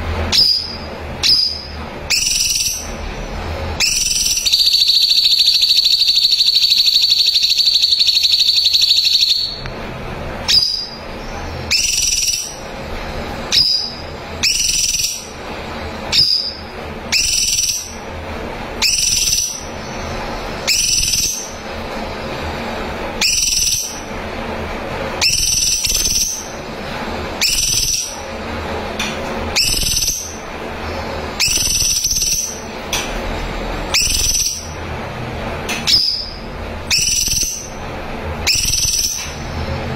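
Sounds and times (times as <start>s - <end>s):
bird whistled notes: 0.3s - 2.9s, 3.8s - 9.6s, 10.5s - 12.6s, 13.5s - 15.3s, 16.1s - 18.0s, 18.8s - 21.6s, 23.2s - 24.0s, 25.2s - 26.6s, 27.4s - 28.2s, 29.5s - 30.4s, 31.4s - 32.7s, 33.9s - 34.8s, 35.9s - 37.8s, 38.4s - 39.4s
bird trilling: 0.3s - 3.0s, 3.8s - 9.6s, 10.5s - 11.1s, 11.7s - 12.6s, 13.5s - 15.4s, 16.1s - 18.1s, 18.8s - 21.6s, 23.2s - 24.1s, 25.2s - 26.7s, 27.4s - 28.2s, 29.5s - 30.5s, 31.4s - 32.7s, 33.9s - 34.8s, 35.9s - 37.8s, 38.4s - 39.4s.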